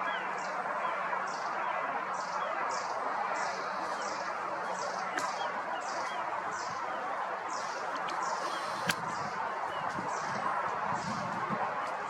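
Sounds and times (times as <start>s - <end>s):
short high hiss: 8.2s - 9.1s.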